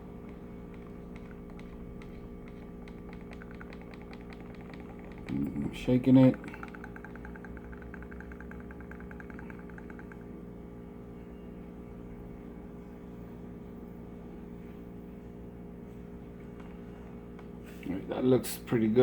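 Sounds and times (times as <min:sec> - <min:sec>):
rapid light ticking: 0:00.0 - 0:10.4
power supply electrical hum: 0:00.0 - 0:19.0.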